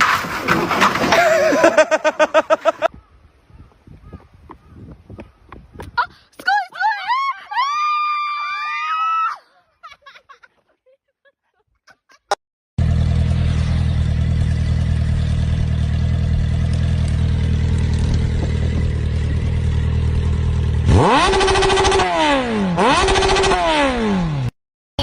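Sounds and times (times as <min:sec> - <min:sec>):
engine droning and revving: 0:12.8 - 0:24.6.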